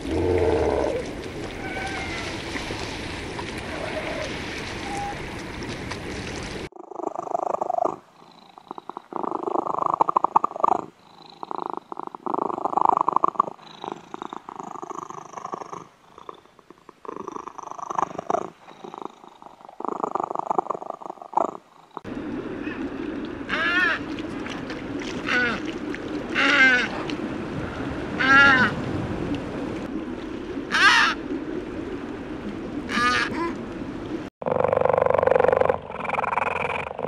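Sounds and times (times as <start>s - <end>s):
surf washing: 0.0s - 6.7s, 22.1s - 34.3s.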